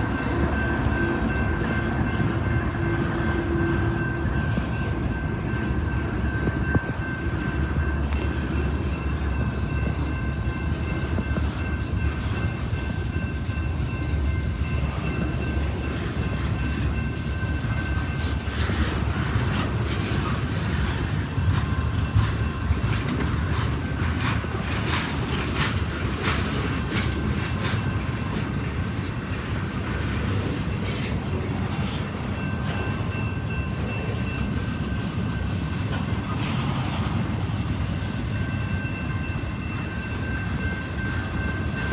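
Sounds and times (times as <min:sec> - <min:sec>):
train wheels rumbling on rail: 0:00.0 - 0:41.9
wheels clacking over rail joints: 0:14.8 - 0:41.9.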